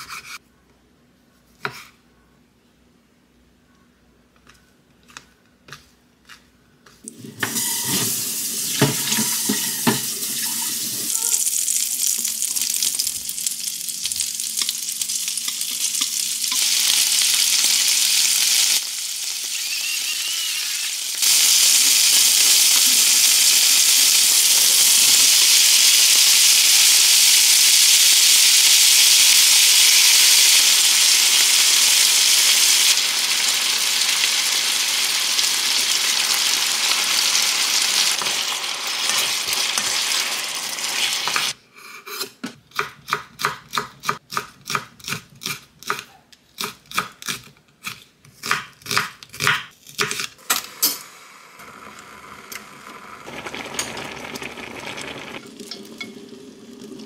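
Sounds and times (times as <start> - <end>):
food sizzling in a frying pan: 7.1 - 41.6, 50.8 - 57.0.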